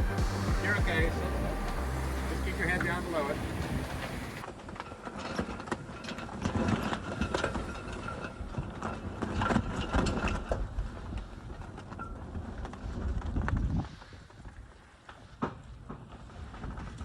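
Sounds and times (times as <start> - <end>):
low wind rumble: 0.0 - 4.5.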